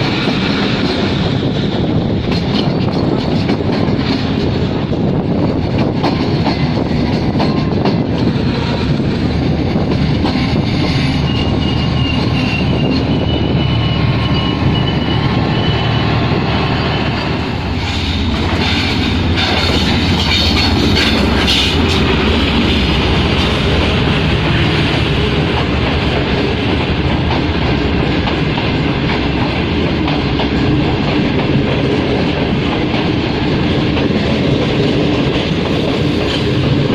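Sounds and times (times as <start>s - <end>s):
train rumbling on rails: 0.0s - 36.9s
high wheel squeal: 11.0s - 24.9s.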